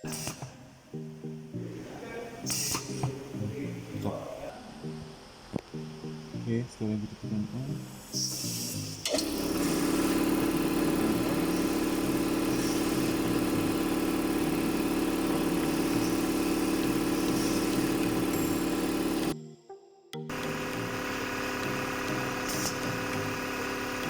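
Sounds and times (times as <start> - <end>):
compactor motor humming: 9.0 - 19.4, 20.3 - 24.0.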